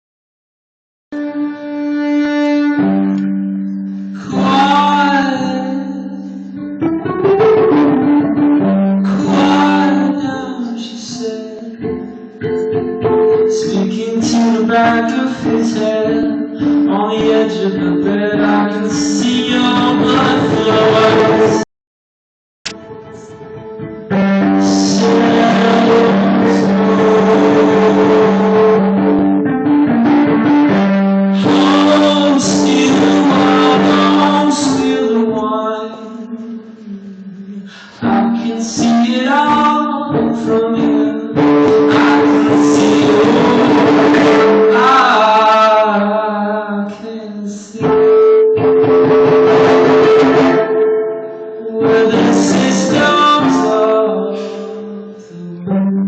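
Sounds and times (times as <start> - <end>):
plucked string melody: 1.2 - 21.6, 22.6 - 35.4.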